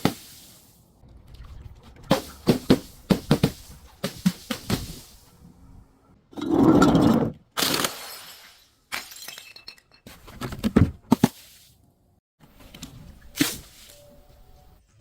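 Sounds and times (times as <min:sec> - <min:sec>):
glass bottles breaking: 0:07.6 - 0:10.1.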